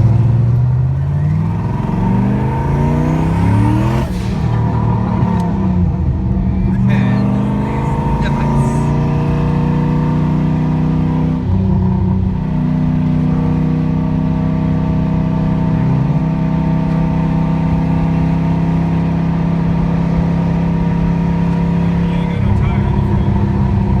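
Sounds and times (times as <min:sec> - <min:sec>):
car engine running: 0:00.0 - 0:24.0.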